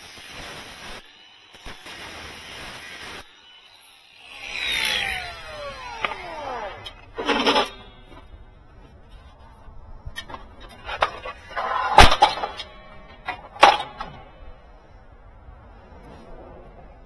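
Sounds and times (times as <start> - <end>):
metal parts clanking: 5.2 - 14.6.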